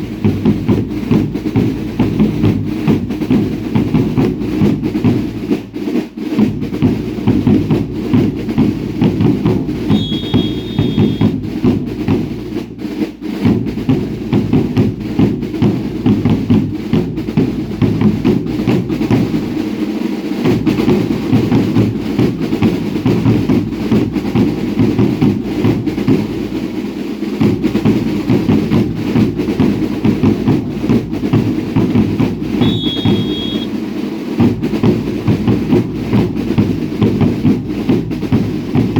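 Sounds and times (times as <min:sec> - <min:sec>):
drums beating a driving rhythm: 0:00.0 - 0:38.9
short high whistle-like tone: 0:09.9 - 0:11.3, 0:32.6 - 0:33.8.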